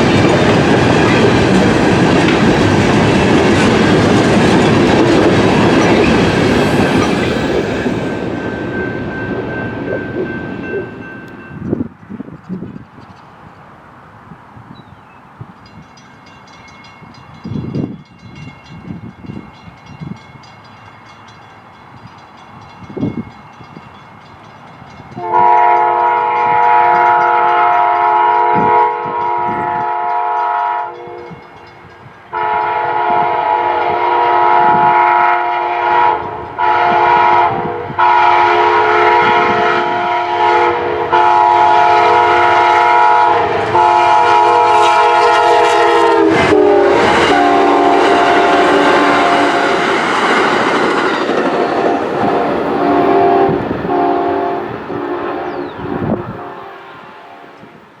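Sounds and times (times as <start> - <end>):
locomotive air horn blasts: 25.2 - 31.4, 32.3 - 50.0, 51.6 - 57.7.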